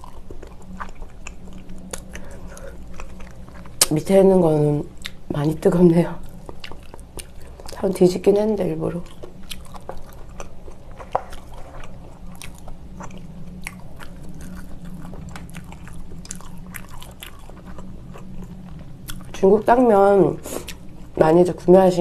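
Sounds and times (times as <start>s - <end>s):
person chewing wetly: 0.0s - 4.0s, 5.0s - 5.2s, 6.2s - 7.8s, 9.0s - 19.4s, 20.4s - 21.2s
low steady hum: 0.0s - 22.0s.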